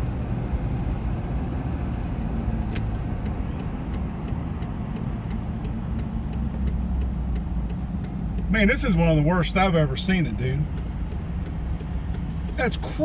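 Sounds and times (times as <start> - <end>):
vehicle engine and tyre rumble: 0.0 - 13.0
faint light ticks: 2.6 - 12.9.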